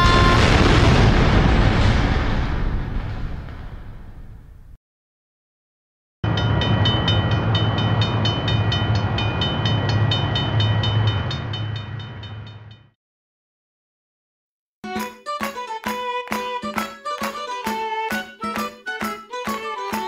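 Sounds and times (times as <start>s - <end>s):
train rumble: 6.3s - 12.8s.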